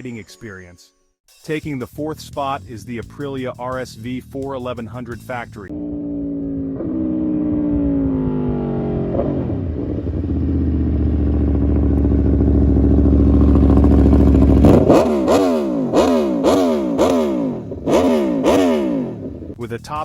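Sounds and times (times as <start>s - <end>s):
motorcycle engine revving: 5.7s - 19.6s.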